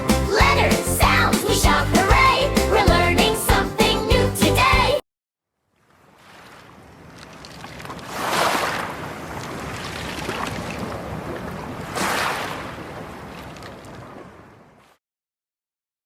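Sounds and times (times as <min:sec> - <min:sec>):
ocean waves rushing in: 0:06.1 - 0:14.8.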